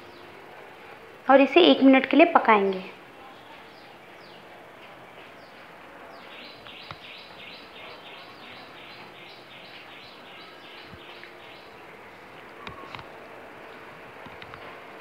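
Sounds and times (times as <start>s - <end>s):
bird chirping rapidly: 6.2s - 11.8s.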